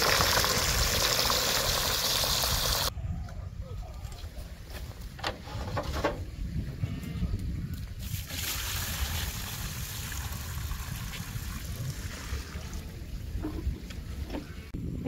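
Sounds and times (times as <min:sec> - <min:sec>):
water running from garden hose: 0:00.0 - 0:02.9, 0:08.0 - 0:12.7
wind rumble on microphone: 0:02.4 - 0:15.0.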